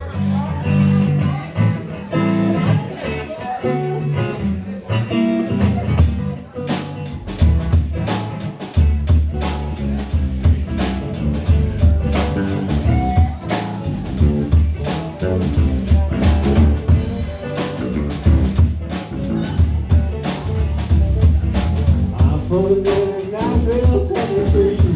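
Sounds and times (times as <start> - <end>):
guitar playing: 0.0 - 24.9
drum kit beat: 5.6 - 24.9.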